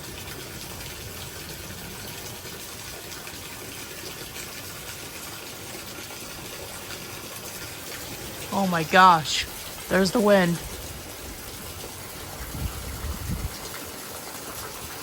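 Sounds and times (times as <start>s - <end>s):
heavy rain downpour: 0.0s - 15.0s
gusting wind: 9.2s - 15.0s.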